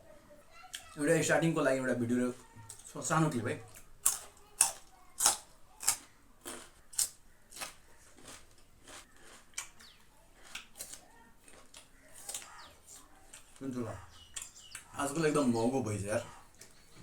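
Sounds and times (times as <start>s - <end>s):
crunchy chewing: 3.6s - 15.3s.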